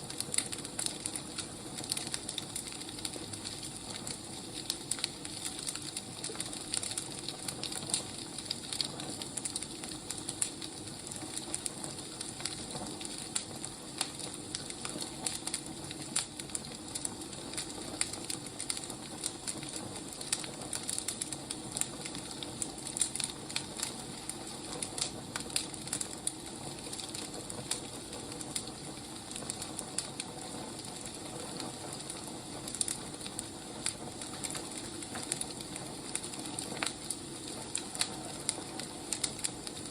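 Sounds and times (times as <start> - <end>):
burning logs crackling: 0.0 - 39.9
fire hissing: 0.0 - 39.9.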